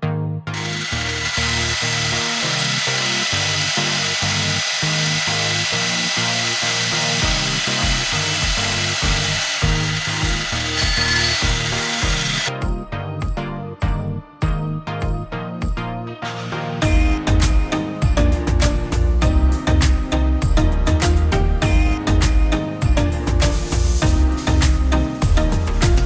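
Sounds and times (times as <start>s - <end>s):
machine tool cutting metal: 0.6s - 12.5s
background music with bass line: 1.2s - 26.0s.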